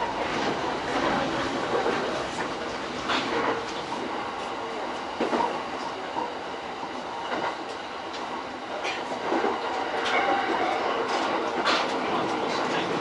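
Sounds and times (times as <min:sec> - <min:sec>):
rumble of train wheels on rail: 0:00.0 - 0:13.0.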